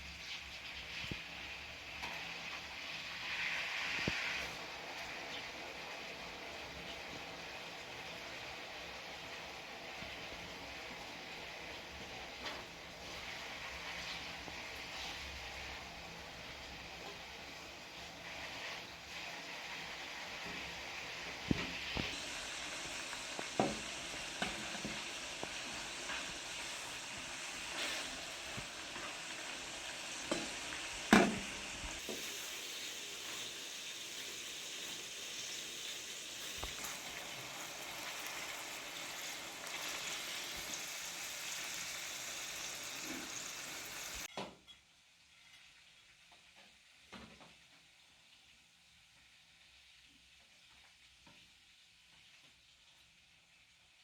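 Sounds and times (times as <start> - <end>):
food sizzling: 0.0 - 44.3
utensil knocking against pan: 31.1 - 31.4.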